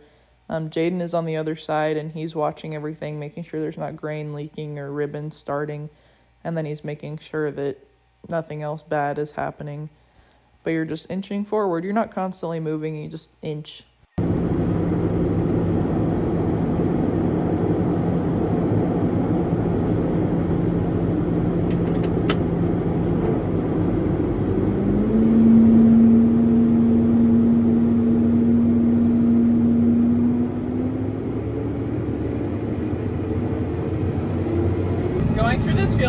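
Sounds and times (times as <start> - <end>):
combine harvester engine: 14.2 - 36.0.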